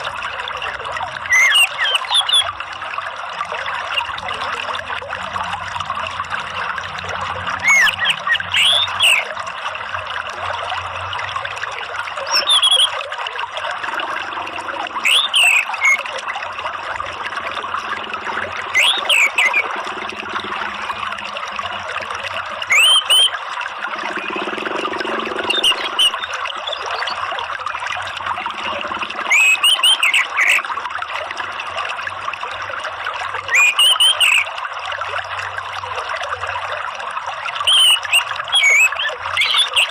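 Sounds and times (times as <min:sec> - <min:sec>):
water trickling: 0:00.0 - 0:39.9
bird whistling phrases: 0:01.3 - 0:02.5, 0:07.6 - 0:09.3, 0:12.3 - 0:13.0, 0:15.0 - 0:16.1, 0:18.7 - 0:19.7, 0:22.7 - 0:23.4, 0:29.2 - 0:30.6, 0:33.5 - 0:34.4, 0:37.7 - 0:39.9.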